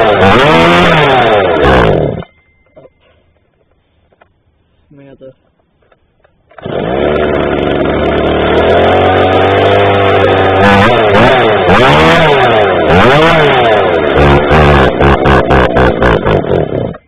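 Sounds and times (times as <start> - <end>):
chainsaw idling and revving: 0.0 - 2.2, 6.5 - 17.0.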